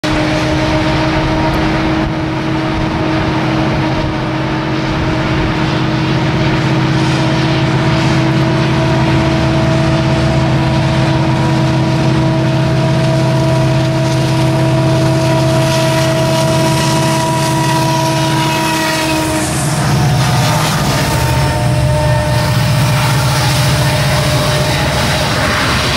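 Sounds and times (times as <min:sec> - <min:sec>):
freight locomotive rumble: 0:00.0 - 0:25.9
steady tone: 0:16.2 - 0:25.9.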